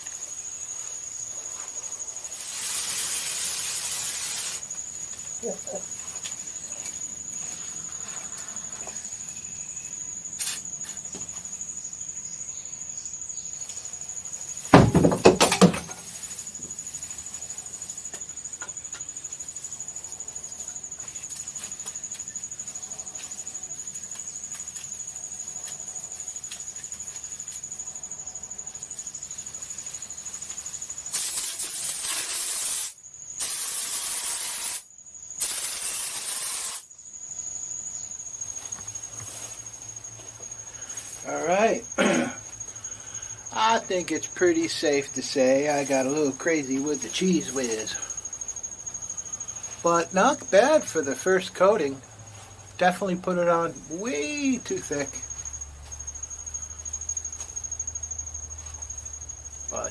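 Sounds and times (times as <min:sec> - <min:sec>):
spray foam gun hissing: 0:02.3 - 0:04.6, 0:31.1 - 0:36.9.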